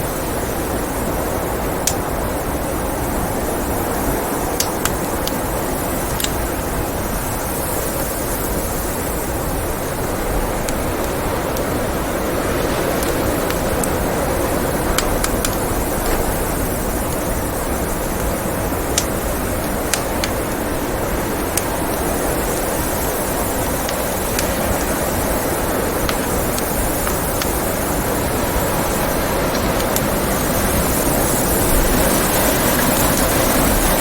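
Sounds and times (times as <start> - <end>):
rushing blizzard wind: 0.0 - 34.0
wood fire crackling and popping: 0.3 - 34.0.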